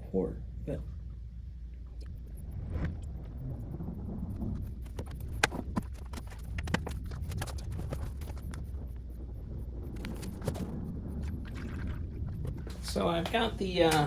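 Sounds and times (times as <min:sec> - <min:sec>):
steady low rumble: 0:00.0 - 0:14.0
coolant glugging from jug: 0:11.4 - 0:12.7.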